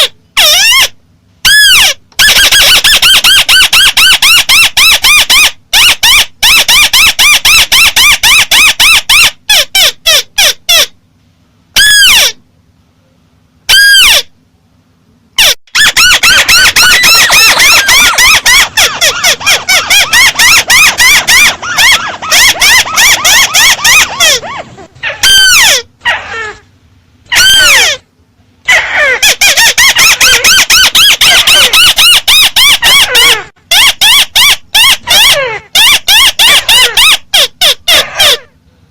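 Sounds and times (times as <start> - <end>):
bird chirping: 15.8 - 25.6.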